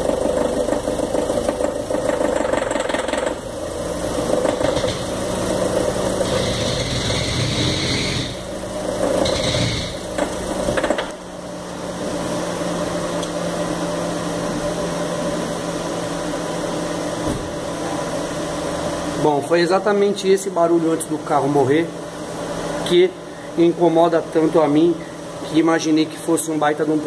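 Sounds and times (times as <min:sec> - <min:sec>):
engine knocking: 0:00.0 - 0:03.5, 0:04.2 - 0:05.0.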